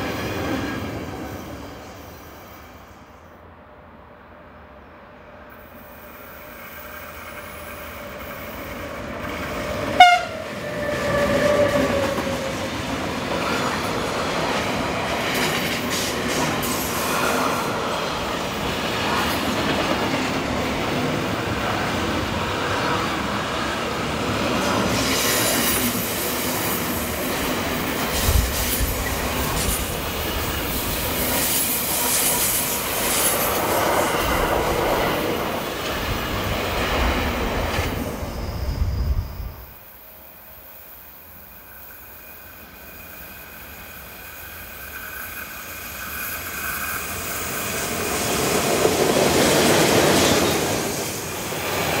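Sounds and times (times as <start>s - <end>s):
freight train rumbling past: 0.0s - 52.0s
train horn blast: 9.6s - 12.5s.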